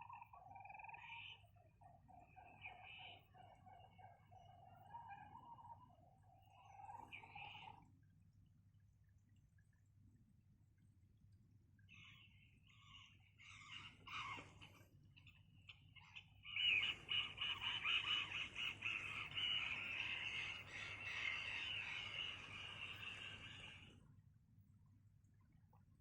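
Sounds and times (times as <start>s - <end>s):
animals calling in pulses: 11.9s - 24.0s.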